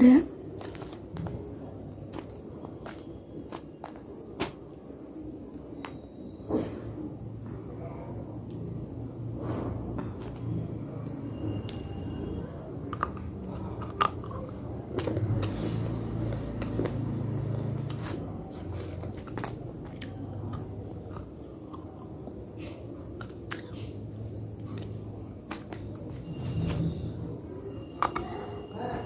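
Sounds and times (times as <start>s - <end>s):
person chewing hard slate: 12.8s - 26.1s.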